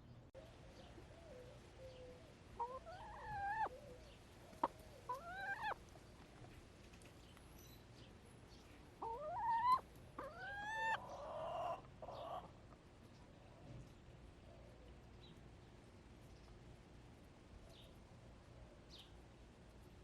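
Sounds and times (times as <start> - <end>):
hens calling: 1.2 - 5.9, 9.0 - 12.5
hens raspy clucking: 1.9 - 5.9, 9.0 - 12.8.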